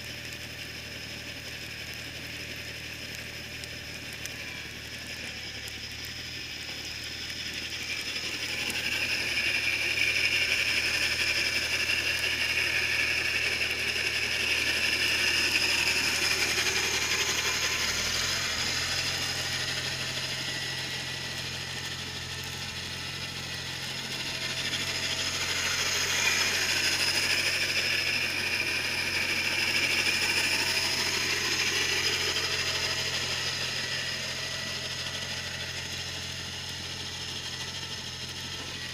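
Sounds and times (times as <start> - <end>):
garden tractor engine running: 0.0 - 38.9
snowblower rushing: 0.0 - 38.9.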